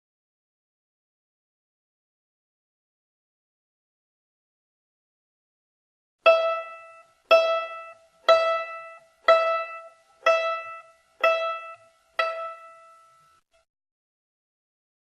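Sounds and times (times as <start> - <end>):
plucked string high note: 6.2 - 13.4.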